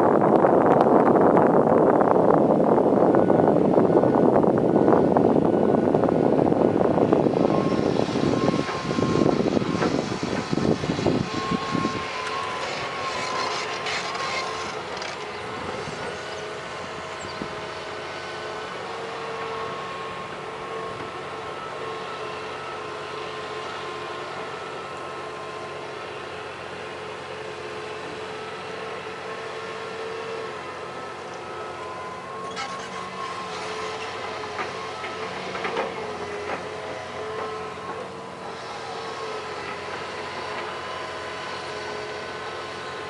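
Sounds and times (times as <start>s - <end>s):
excavator diesel engine running: 0.0s - 43.0s
faint whining tones: 2.3s - 43.0s.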